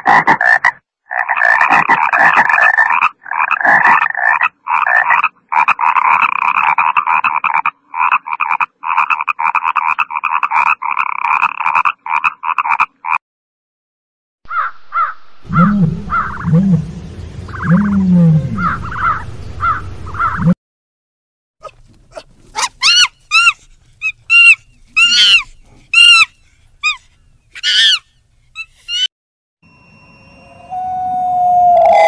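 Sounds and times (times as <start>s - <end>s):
animal calls: 14.5s - 20.6s, 21.6s - 29.1s
high rising and falling calls: 14.5s - 20.6s, 28.6s - 32.0s.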